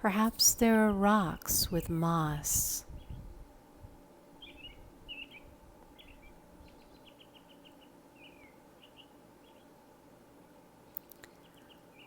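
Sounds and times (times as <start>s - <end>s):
faint steady hum: 0.0s - 12.0s
songbird chirps: 4.4s - 9.8s, 10.8s - 12.0s.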